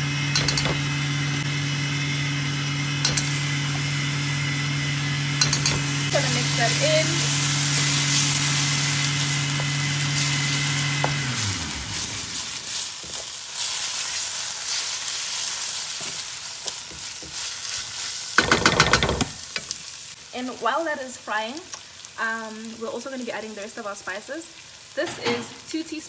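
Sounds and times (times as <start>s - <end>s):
motor humming: 0.0s - 13.2s
food sizzling in wok: 0.4s - 26.0s.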